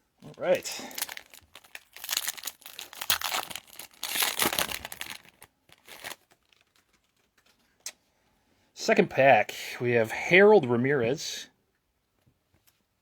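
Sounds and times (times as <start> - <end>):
foil wrapper tearing and crinkling: 0.4 - 7.5.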